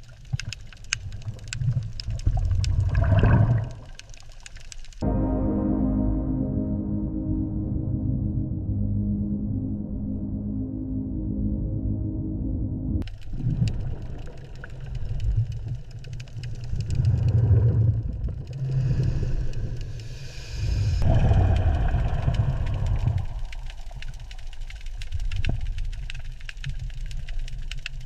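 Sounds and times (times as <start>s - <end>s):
faint crackles: 0.0s - 5.0s, 13.0s - 28.0s
low engine-like rumbling drone: 5.0s - 13.1s.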